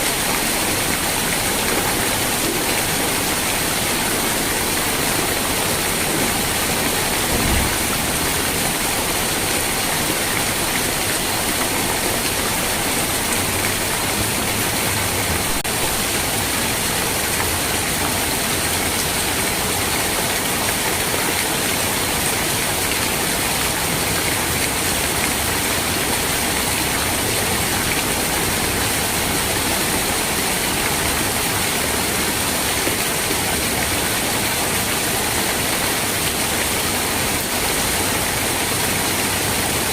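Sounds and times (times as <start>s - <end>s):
rain hiss: 0.0s - 39.9s
brief low thump: 7.2s - 8.0s.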